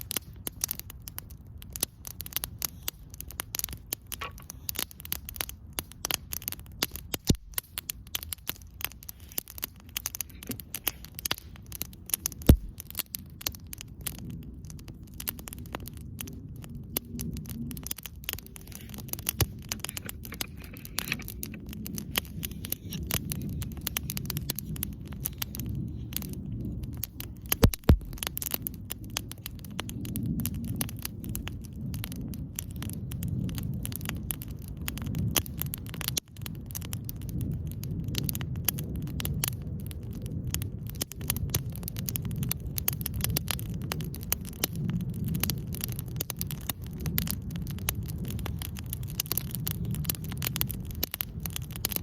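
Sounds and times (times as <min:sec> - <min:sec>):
campfire crackling: 0:00.0 - 0:52.0
low rumble: 0:12.5 - 0:12.8, 0:17.3 - 0:32.4.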